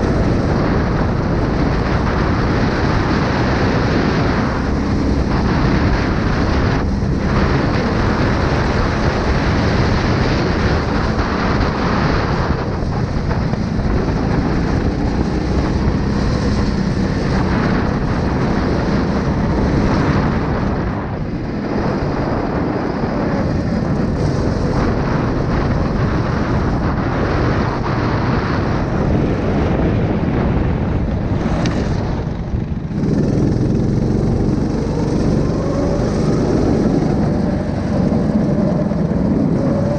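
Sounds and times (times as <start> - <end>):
small engine running: 31.3 - 39.9.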